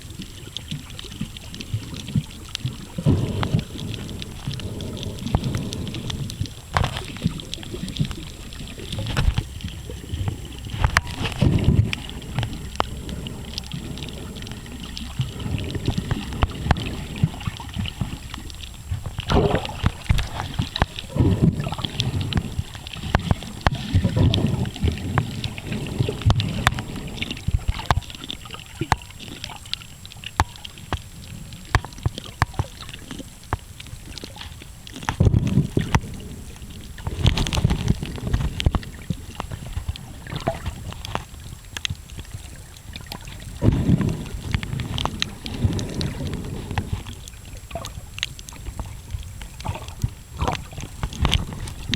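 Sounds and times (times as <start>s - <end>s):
underwater clicks and crackles: 0.0s - 51.9s
underwater rumbling and sloshing: 0.0s - 51.9s.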